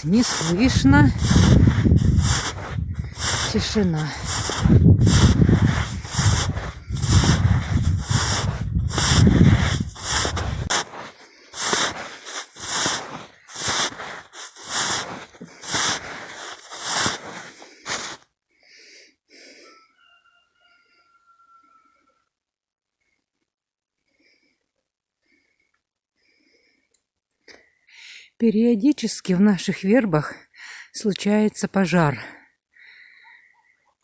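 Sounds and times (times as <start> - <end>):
footsteps crunching through snow: 0.0 - 18.2.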